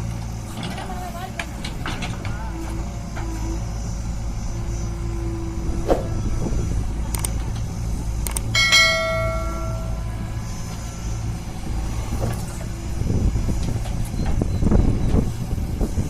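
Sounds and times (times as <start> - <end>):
diesel machinery droning: 0.0 - 16.0
heavy rumble: 0.0 - 16.0
metallic clang: 8.6 - 10.0.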